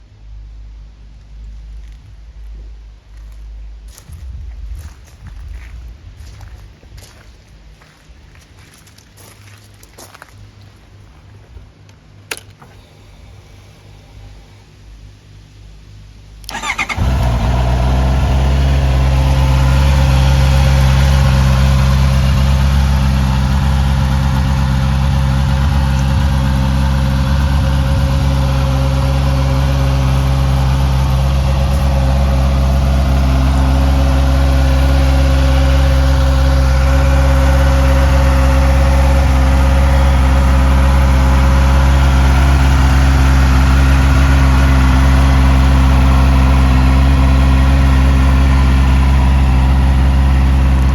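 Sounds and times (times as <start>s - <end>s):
motorcycle engine starting and idling: 11.2s - 50.9s.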